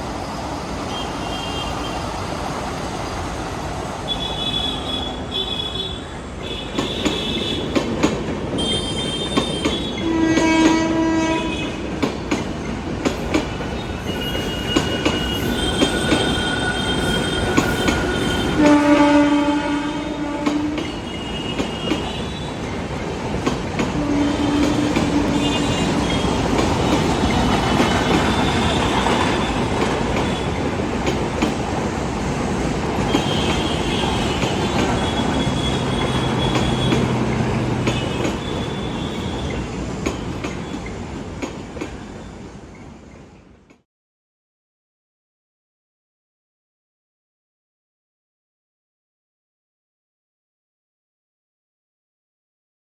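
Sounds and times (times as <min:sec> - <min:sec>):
train wheels rumbling on track: 0:00.0 - 0:43.8
train horn blasts: 0:08.6 - 0:11.9, 0:14.1 - 0:22.5, 0:23.9 - 0:26.5, 0:33.1 - 0:39.5
metallic wheel squeals: 0:13.9 - 0:18.6.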